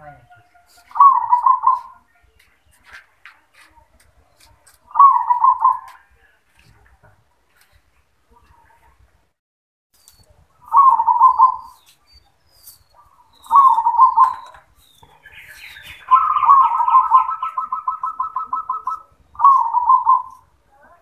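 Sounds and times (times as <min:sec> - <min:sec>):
dove cooing: 0:00.6 - 0:02.1, 0:04.9 - 0:06.0, 0:10.6 - 0:11.8, 0:13.4 - 0:20.5.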